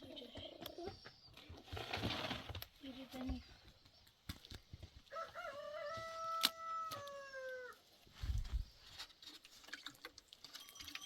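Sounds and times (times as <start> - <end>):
rooster crowing: 5.1 - 7.8.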